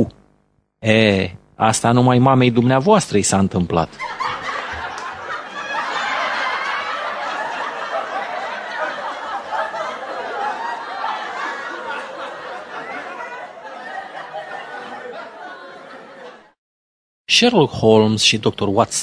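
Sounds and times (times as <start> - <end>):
people laughing: 3.9 - 16.6.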